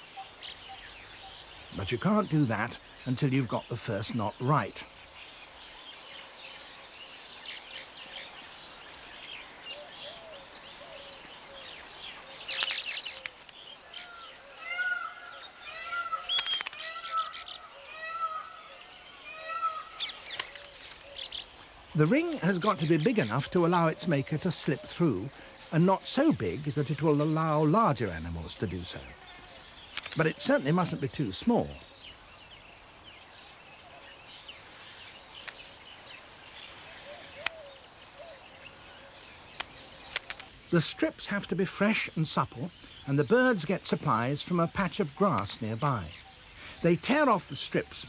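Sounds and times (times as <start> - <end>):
higher bird chirps: 0.0 - 48.0
weaver birds calling: 0.0 - 48.0
sharp clicks: 16.3 - 17.3, 29.9 - 30.4, 39.5 - 40.6.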